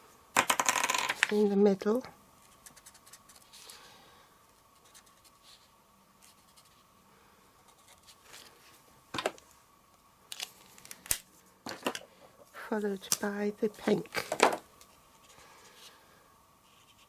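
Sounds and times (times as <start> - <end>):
marker scratching on card: 4.8 - 5.6, 16.6 - 17.0.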